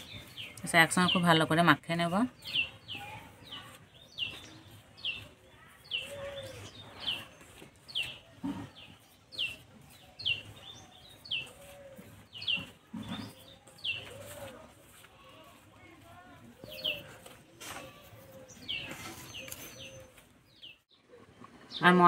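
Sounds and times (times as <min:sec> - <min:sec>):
small bird chirping: 0:00.0 - 0:14.6
dove cooing: 0:11.4 - 0:14.7.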